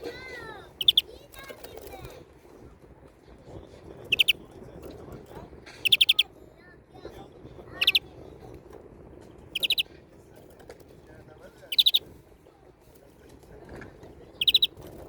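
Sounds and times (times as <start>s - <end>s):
finch singing fast trills: 0.8s - 1.0s, 4.1s - 4.4s, 5.8s - 6.2s, 7.8s - 8.0s, 9.6s - 9.8s, 11.7s - 12.0s, 14.4s - 14.7s.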